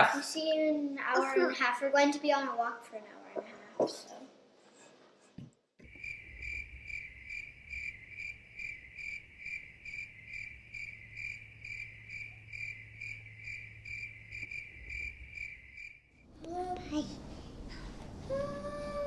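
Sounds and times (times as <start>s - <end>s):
cricket chirping: 5.8s - 16.3s.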